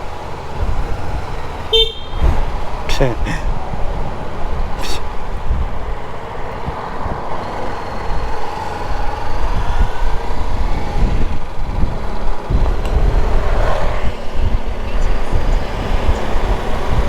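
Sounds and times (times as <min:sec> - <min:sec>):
motorcycle engine: 0:00.0 - 0:17.0
wind and road noise: 0:00.0 - 0:17.0.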